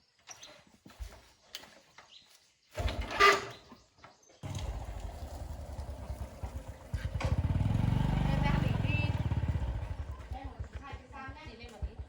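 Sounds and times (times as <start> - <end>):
motorbike engine starting and idling: 2.8 - 3.5, 4.4 - 12.0.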